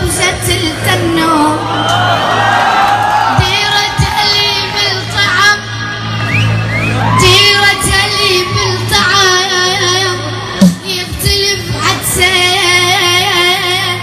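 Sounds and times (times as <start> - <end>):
young boy singing: 0.0 - 1.6, 7.2 - 14.0.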